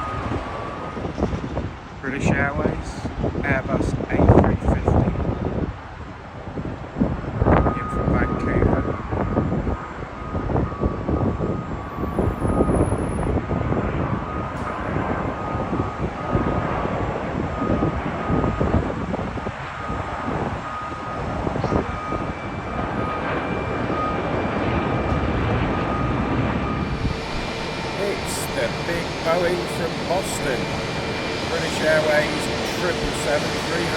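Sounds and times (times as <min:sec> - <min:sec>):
high jet engine whine: 0:00.0 - 0:33.9
jet engine rumble: 0:00.0 - 0:33.9
higher engine whine: 0:09.8 - 0:33.9.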